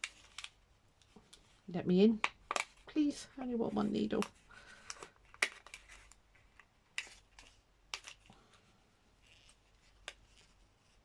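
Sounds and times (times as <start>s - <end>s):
packet rustling: 0.0s - 8.4s.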